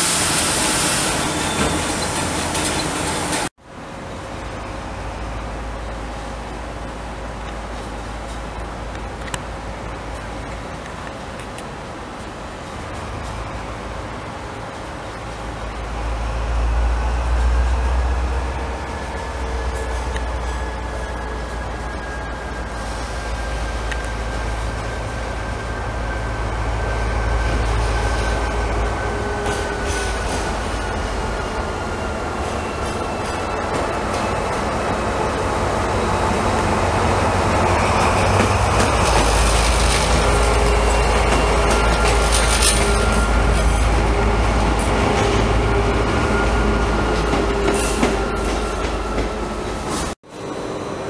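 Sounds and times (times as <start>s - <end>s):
high squeal of train: 0.0s - 3.5s, 4.1s - 51.0s
train rumbling: 0.0s - 51.0s
wheel squeals: 1.0s - 3.5s.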